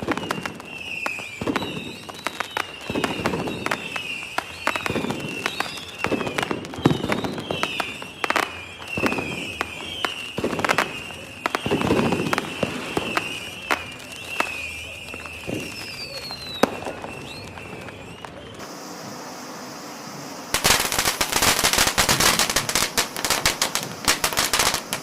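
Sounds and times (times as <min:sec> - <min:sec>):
fireworks bangs and crackles: 0:00.0 - 0:25.0
high wavering whistle: 0:00.0 - 0:25.0.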